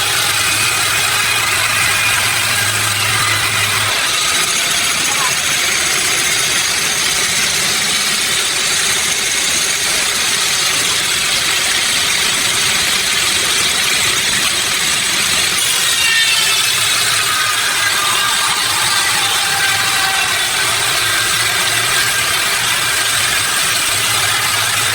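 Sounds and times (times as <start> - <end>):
whine falling in pitch: 0.0 - 6.7
sawmill machinery running: 0.0 - 24.9.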